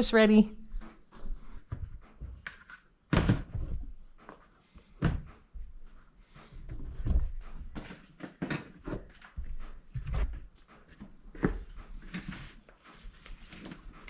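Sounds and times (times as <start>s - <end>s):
footsteps: 0.0s - 2.6s, 8.9s - 14.0s
crickets chirring: 0.0s - 14.0s
knocks and thuds of handling things: 0.7s - 5.9s, 6.6s - 12.5s.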